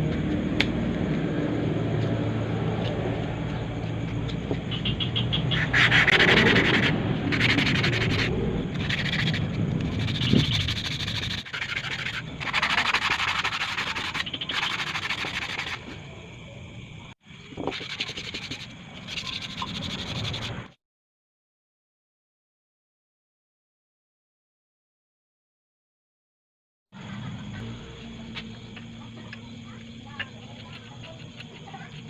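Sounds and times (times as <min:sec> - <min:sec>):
abrasive rubbing on metal: 0:04.7 - 0:16.0.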